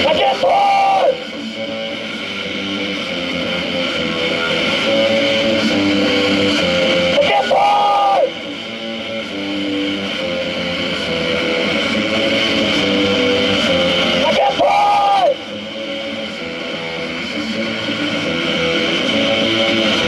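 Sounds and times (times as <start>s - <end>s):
noise-rock music with electric guitar: 0.0s - 20.0s.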